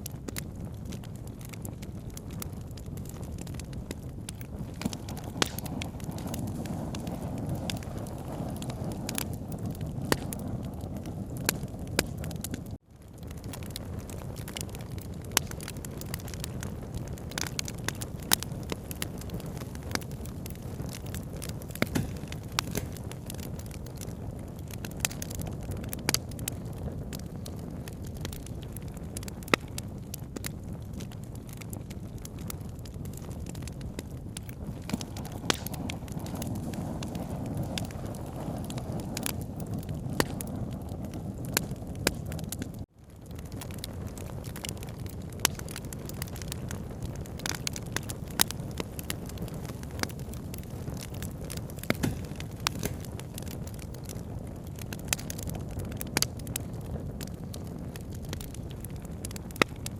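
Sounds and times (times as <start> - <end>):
campfire crackling: 0.0 - 59.9
sharp wood pops: 21.8 - 23.0, 51.8 - 53.1.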